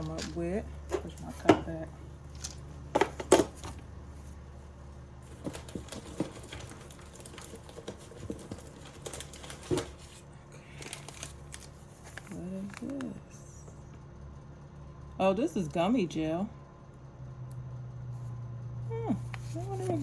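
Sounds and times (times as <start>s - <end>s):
steady low hum: 0.0s - 20.0s
packaging clicks and knocks: 2.4s - 3.8s, 5.3s - 10.2s.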